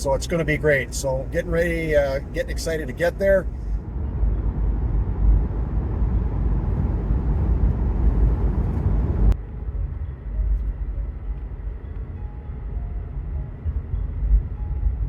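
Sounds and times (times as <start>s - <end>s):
road and engine rumble in car: 0.0s - 15.0s.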